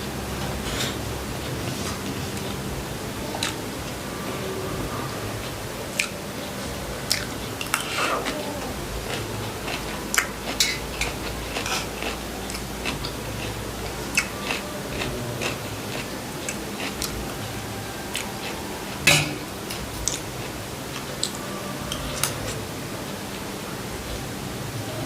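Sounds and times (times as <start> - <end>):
person chewing food: 7.0 - 22.6.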